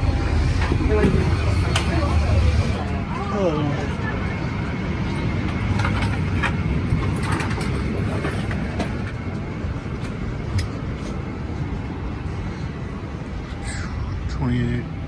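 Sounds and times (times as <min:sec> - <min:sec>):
ground machinery: 0:00.0 - 0:04.1
low rumble of cabin air: 0:00.0 - 0:15.0.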